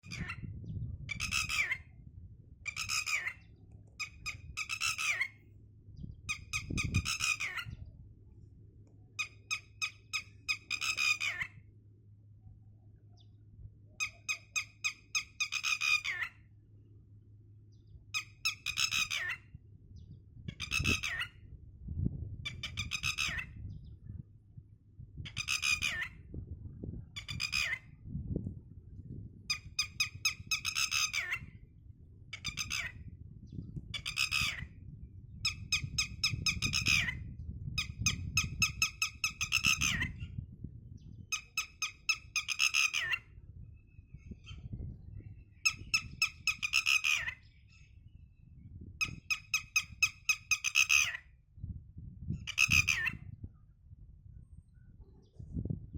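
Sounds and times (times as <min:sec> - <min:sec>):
bird squawking: 0:00.0 - 0:00.5, 0:01.1 - 0:01.9, 0:02.7 - 0:05.4, 0:06.3 - 0:07.8, 0:09.2 - 0:11.7, 0:14.0 - 0:16.4, 0:18.2 - 0:19.5, 0:20.6 - 0:21.4, 0:22.6 - 0:23.6, 0:25.3 - 0:26.2, 0:27.2 - 0:27.9, 0:29.5 - 0:31.6, 0:32.4 - 0:33.0, 0:34.0 - 0:34.7, 0:35.4 - 0:40.2, 0:41.3 - 0:43.3, 0:45.5 - 0:47.8, 0:49.0 - 0:51.3, 0:52.5 - 0:53.2.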